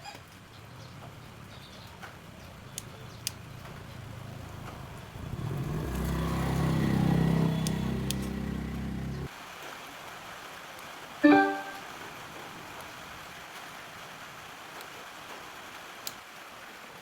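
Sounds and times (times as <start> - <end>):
vehicle engine running: 0.6 - 9.3
sharp clicks: 7.5 - 8.4.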